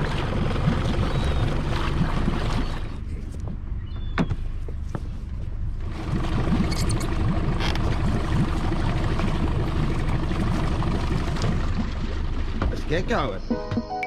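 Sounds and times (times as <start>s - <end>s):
water rushing: 0.0s - 3.1s, 5.8s - 13.8s
boat motor running: 0.0s - 14.0s.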